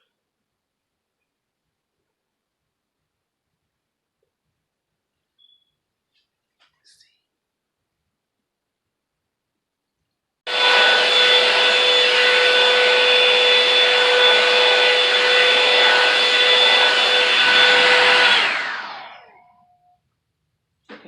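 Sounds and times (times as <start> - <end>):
hair dryer fan whining: 10.5 - 20.0.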